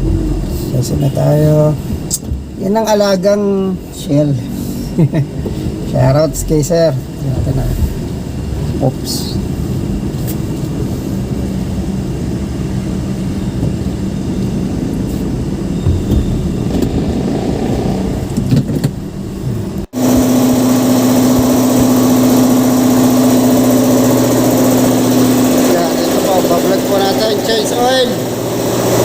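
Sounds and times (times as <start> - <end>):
car engine running: 0.0 - 2.9, 5.4 - 29.0
machine hum with low drone: 0.0 - 29.0.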